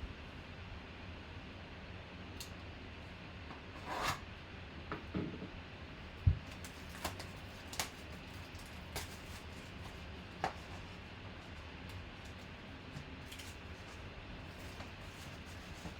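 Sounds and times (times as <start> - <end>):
packaging rustle: 6.6 - 11.0.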